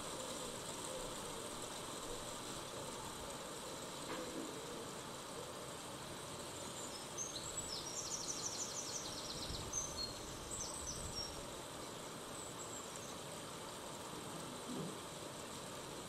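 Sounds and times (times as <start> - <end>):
steady background hiss: 0.0 - 16.0
small bird chirping: 6.4 - 13.3.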